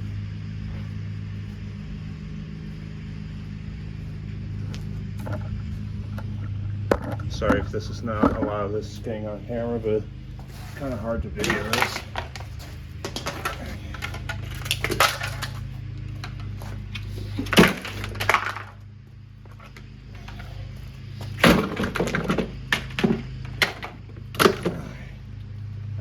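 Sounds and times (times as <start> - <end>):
steady low hum: 0.0 - 26.0
plastic cracking and breaking: 11.4 - 16.5, 17.4 - 18.8.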